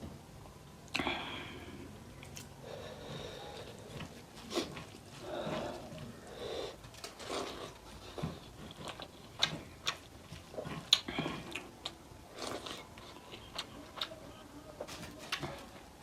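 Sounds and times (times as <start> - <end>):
person chewing food: 2.1 - 14.2.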